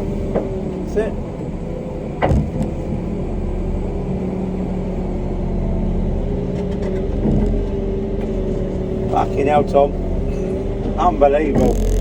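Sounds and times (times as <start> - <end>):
tug engine droning: 0.0 - 12.0
steady hum tones: 8.8 - 12.0.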